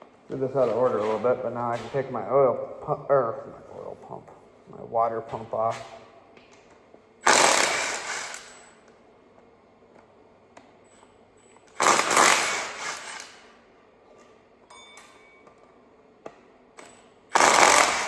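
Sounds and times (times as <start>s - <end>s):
handheld power tool bursts: 7.2s - 8.8s, 11.7s - 13.5s, 17.3s - 18.0s.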